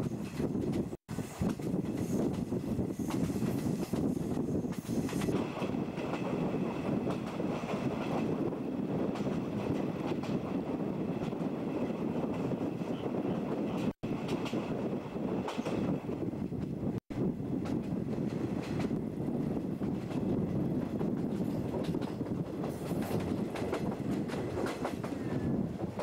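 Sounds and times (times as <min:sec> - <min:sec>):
train wheels on rails: 0:00.0 - 0:26.0.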